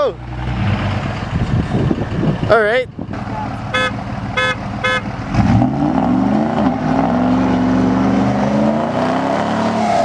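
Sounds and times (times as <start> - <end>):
truck engine revving hard: 0.2 - 2.4, 3.1 - 10.0.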